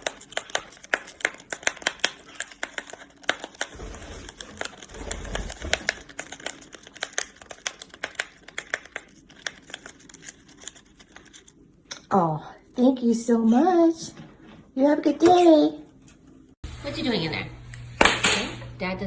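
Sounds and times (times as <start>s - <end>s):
parrot tearing paper: 0.0s - 11.6s.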